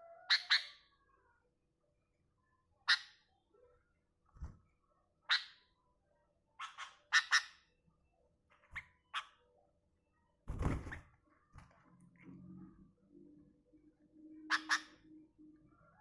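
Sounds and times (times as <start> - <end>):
bird chirping: 6.6 - 9.6, 13.7 - 16.0.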